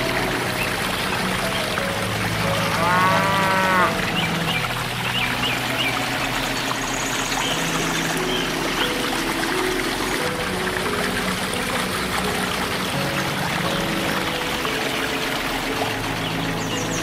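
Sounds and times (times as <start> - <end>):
water pouring into pond: 0.0 - 17.0
cow mooing: 2.6 - 4.0.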